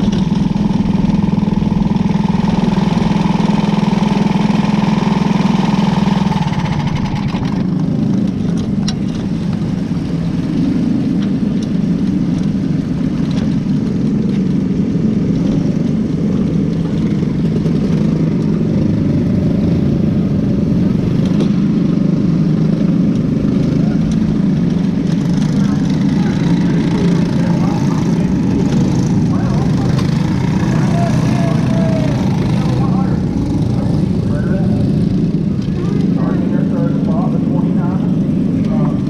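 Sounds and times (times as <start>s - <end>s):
racing car engine running: 0.0s - 39.0s.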